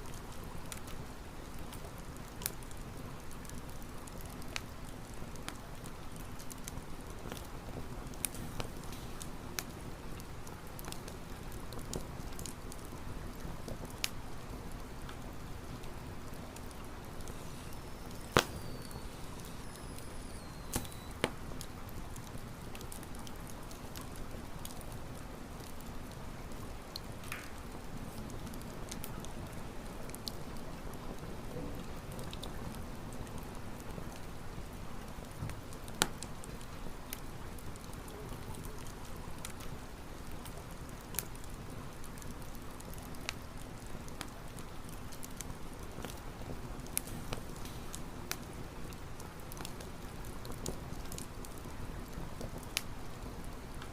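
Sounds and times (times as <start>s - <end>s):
campfire crackling and hissing: 0.0s - 53.9s
faint high whistle: 17.3s - 21.2s.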